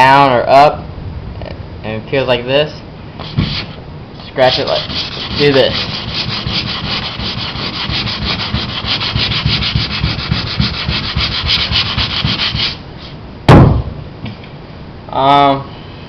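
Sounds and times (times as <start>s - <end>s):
sandpaper rubbing fiberglass: 3.2s - 13.2s
loud thump: 13.5s - 14.0s.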